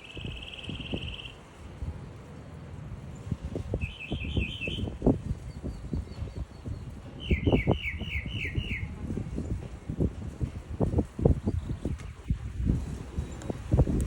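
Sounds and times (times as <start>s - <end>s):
small bird chirping: 0.0s - 1.4s, 3.8s - 8.9s
low thumps and rumbling: 3.3s - 14.0s.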